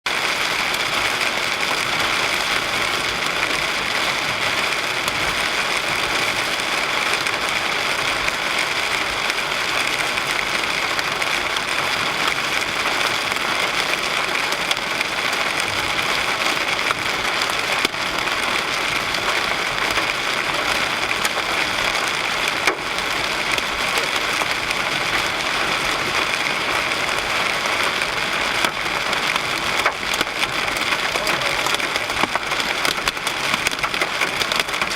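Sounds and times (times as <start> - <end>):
rain on car body: 0.1 - 34.9.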